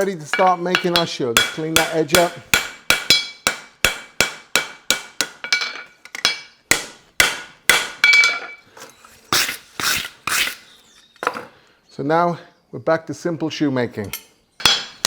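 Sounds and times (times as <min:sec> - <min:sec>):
hammer striking horseshoe on anvil: 0:00.0 - 0:08.6, 0:14.2 - 0:15.0.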